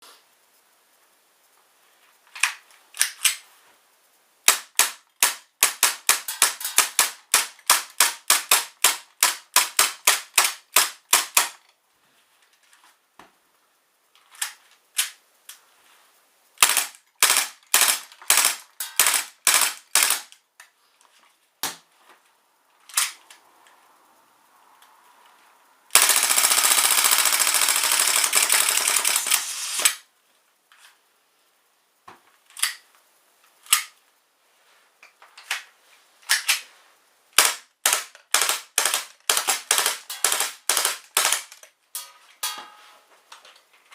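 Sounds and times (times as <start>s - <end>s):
dense continuous noise: 0.0s - 43.9s
airsoft pistol shots: 4.5s - 11.5s, 16.6s - 20.3s, 37.4s - 41.6s.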